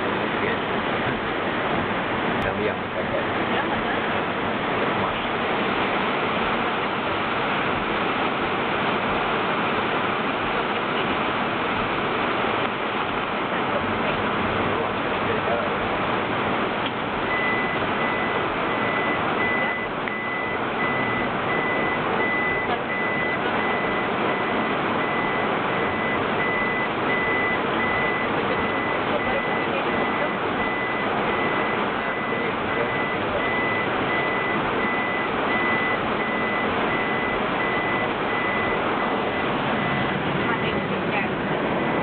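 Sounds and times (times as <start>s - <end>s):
heavy rain on a vehicle: 0.0s - 42.0s
high electronic beeps: 17.3s - 40.1s.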